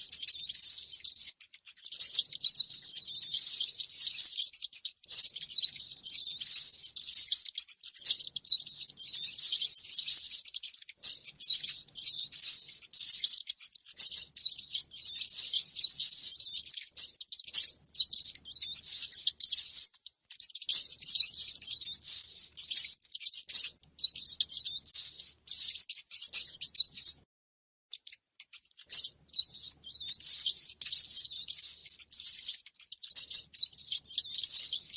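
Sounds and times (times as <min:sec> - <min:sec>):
rodent squeaking: 0:00.0 - 0:27.3, 0:27.9 - 0:34.9.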